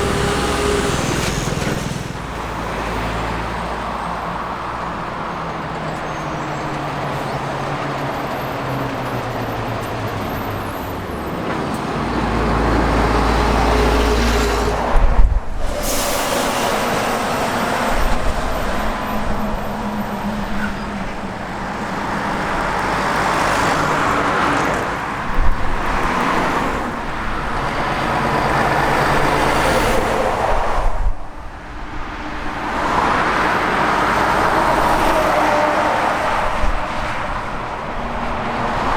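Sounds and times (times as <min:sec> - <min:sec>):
diesel trucks driving past: 0:00.0 - 0:38.9.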